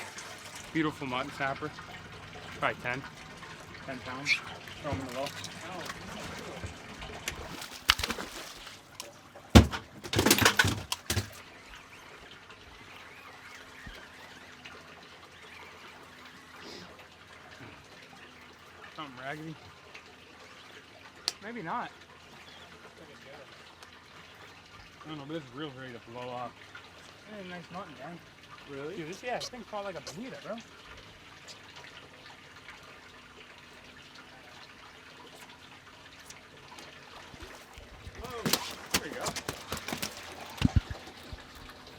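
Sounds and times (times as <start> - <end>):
faint water trickle: 0.0 - 9.6, 10.7 - 41.9
water splashing: 0.0 - 11.5, 34.7 - 41.9.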